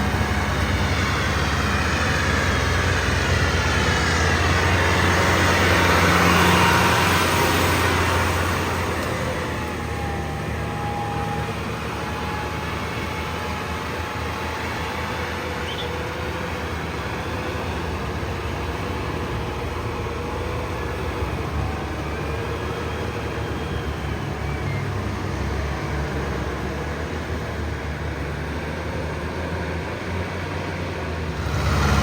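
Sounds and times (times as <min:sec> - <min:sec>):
steady engine drone: 0:00.0 - 0:32.0.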